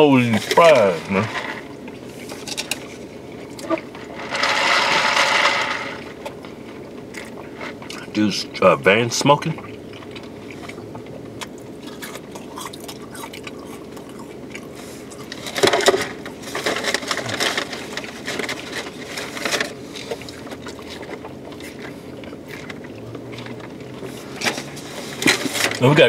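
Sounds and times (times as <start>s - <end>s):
food rustling: 0.0s - 8.2s, 9.6s - 26.0s
people chewing and crunching food: 0.0s - 26.0s
steady low hum: 0.0s - 26.0s.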